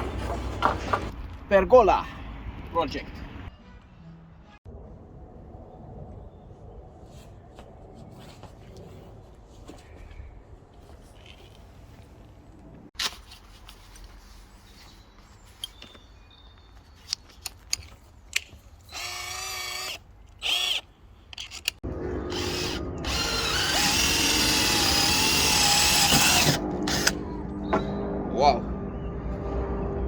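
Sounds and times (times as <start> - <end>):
cordless drill whirring: 18.9 - 20.8, 22.3 - 27.2.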